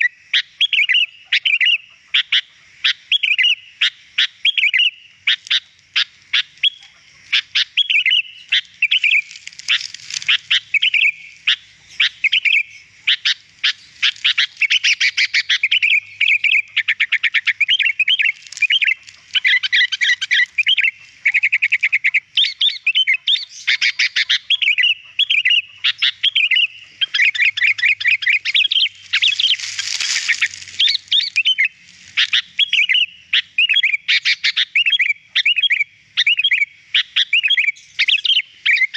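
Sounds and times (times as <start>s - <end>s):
bird singing chirps and trills: 0.0s - 38.9s
harsh scratchy bird call: 4.5s - 36.6s.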